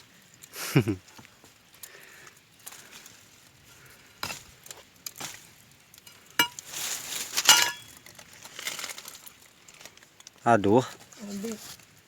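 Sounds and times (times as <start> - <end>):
metal tool clinking against stones: 6.0 - 6.7, 7.4 - 8.2
scraping clatter: 6.0 - 9.2.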